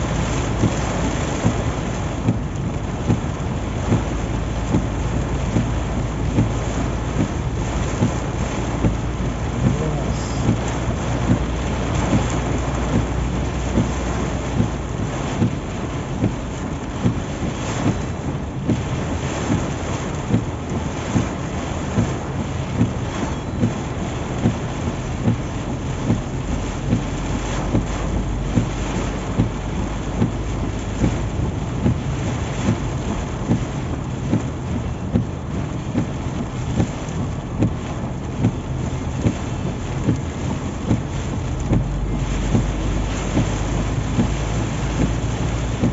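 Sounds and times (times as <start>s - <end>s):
heavy rain on a car: 0.0s - 45.9s
road and engine rumble: 0.0s - 45.9s
short regular thump: 40.0s - 45.9s.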